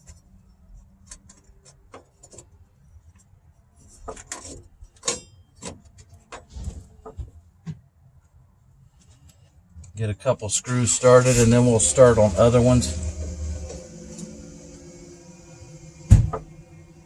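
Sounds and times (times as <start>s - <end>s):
low shuffling rumble: 10.7s - 17.0s.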